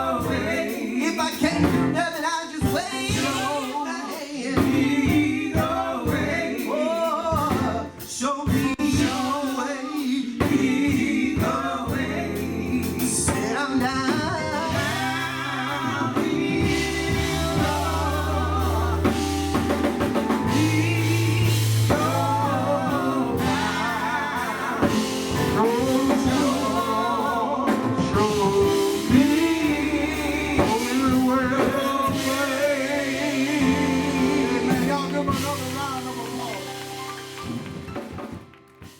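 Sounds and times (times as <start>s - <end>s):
drum kit: 0.0s - 38.9s
gospel singers: 0.0s - 38.9s
bass guitar: 1.4s - 3.6s, 10.4s - 38.4s.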